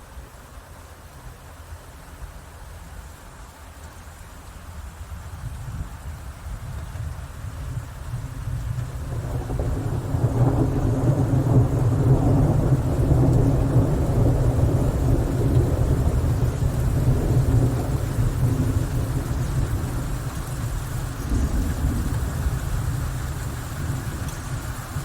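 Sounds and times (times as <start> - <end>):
rain: 0.0 - 25.0
low roll of thunder: 5.7 - 25.0.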